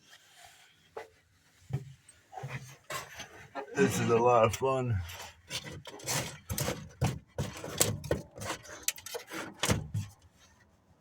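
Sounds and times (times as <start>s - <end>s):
irregular knocks and scuffs: 0.9s - 3.2s.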